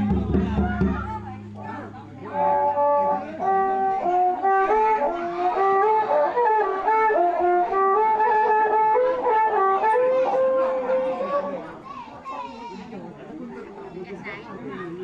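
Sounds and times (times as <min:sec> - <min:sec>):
reedy wind instrument melody: 0:00.0 - 0:11.7.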